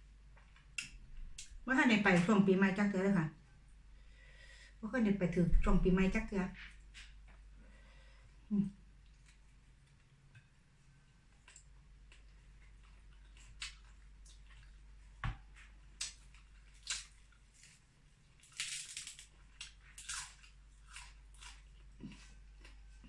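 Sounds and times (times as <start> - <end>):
person chewing with wet smacks: 11.2 - 17.8.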